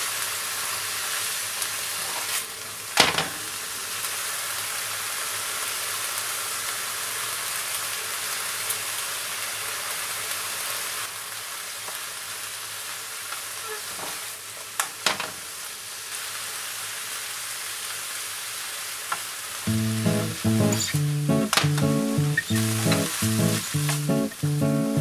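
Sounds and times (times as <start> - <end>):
leaves sizzling in a frying pan: 0.0 - 20.3, 21.1 - 24.1
music: 19.7 - 25.0.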